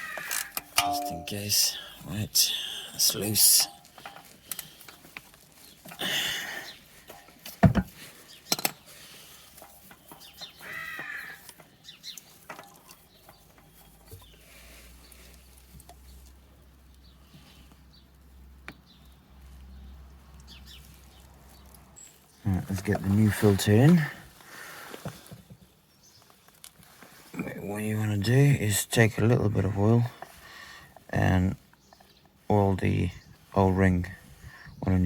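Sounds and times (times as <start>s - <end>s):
oil filter being unscrewed: 6.8s - 14.4s
bird calling: 10.0s - 12.3s.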